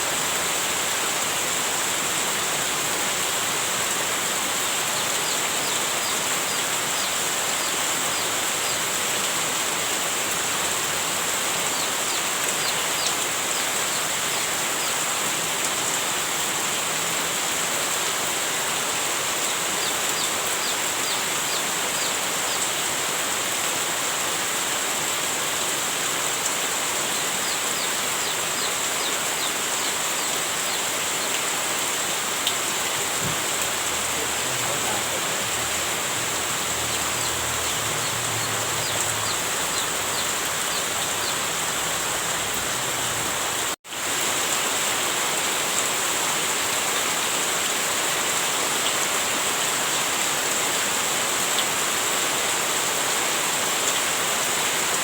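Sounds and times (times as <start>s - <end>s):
heavy rain hiss: 0.0s - 55.0s.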